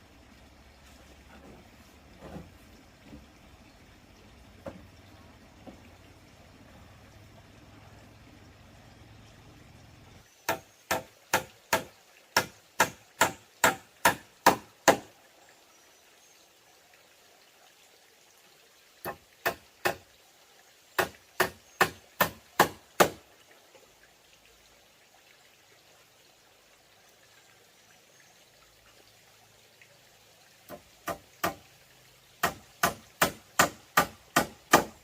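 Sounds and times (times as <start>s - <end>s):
hammer driving nails into wood: 32.4s - 35.0s.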